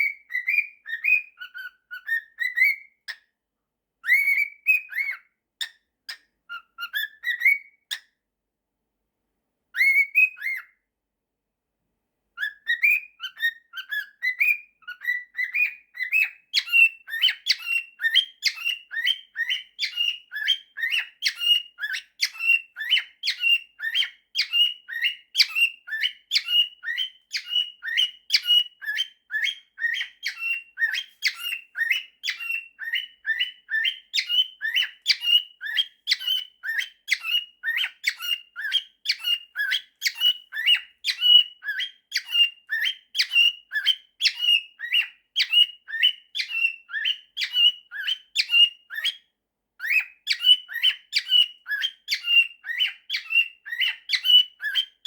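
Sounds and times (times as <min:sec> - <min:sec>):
cockatiel whistling: 0:00.0 - 0:03.2, 0:04.0 - 0:05.3, 0:06.5 - 0:08.0, 0:09.8 - 0:10.8, 0:12.4 - 0:55.0.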